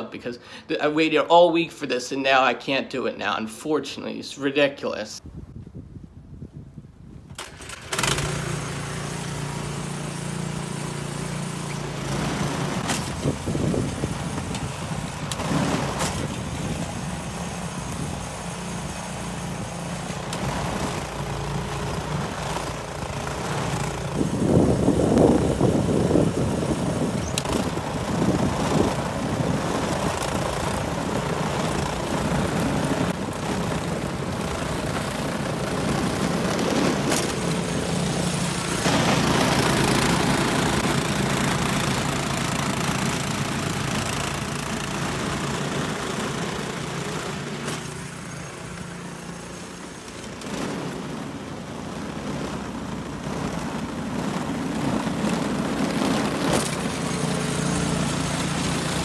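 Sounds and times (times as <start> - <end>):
snowblower engine running: 7.4 - 59.0.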